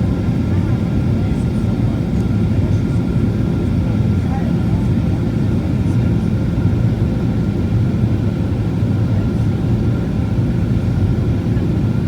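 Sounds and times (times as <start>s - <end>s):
airplane cabin rumble: 0.0s - 6.7s.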